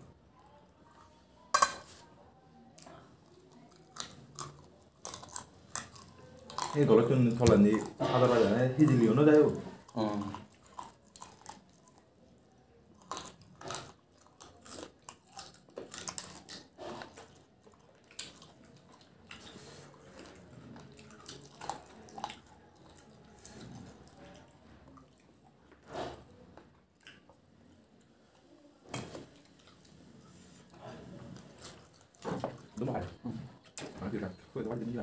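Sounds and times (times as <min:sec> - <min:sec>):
chewing and biting meat: 0:13.0 - 0:24.5.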